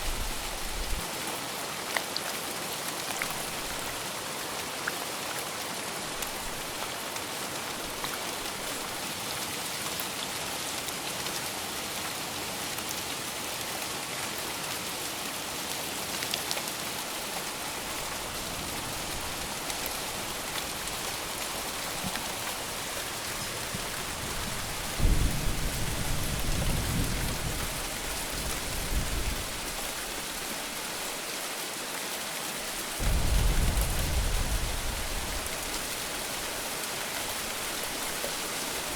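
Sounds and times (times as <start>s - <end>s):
heavy rain falling: 0.0s - 1.9s, 2.5s - 38.9s
deep thunder rumble: 33.0s - 35.9s.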